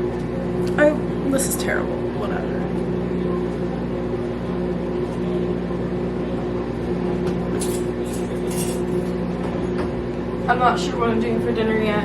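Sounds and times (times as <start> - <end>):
steady mechanical hum: 0.0 - 12.0
rustling clicks: 7.6 - 9.1.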